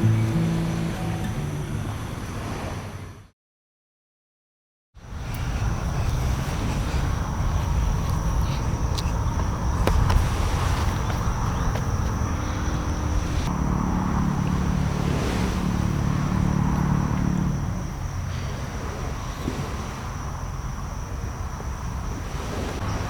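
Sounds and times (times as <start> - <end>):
low engine hum: 0.0 - 3.3, 5.0 - 23.0
high insect drone: 5.0 - 23.0.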